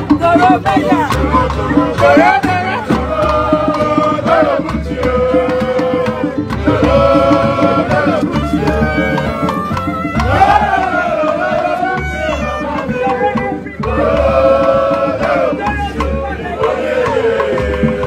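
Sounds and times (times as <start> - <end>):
person singing long notes: 0.0 - 16.2
drums and percussion beat: 0.0 - 18.0.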